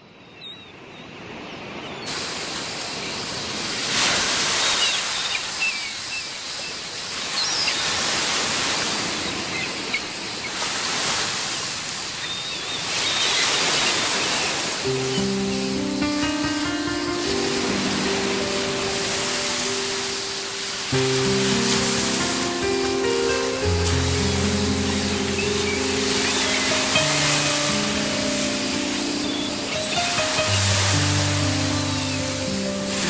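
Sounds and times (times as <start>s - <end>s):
waves breaking on rocky shore: 1.7s - 33.0s
music: 14.9s - 33.0s.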